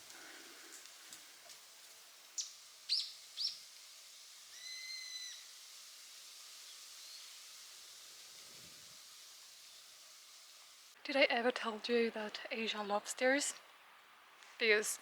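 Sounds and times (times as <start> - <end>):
faint outdoor hiss: 0.0 - 15.0
whistled bird call: 2.4 - 3.6, 4.5 - 5.6.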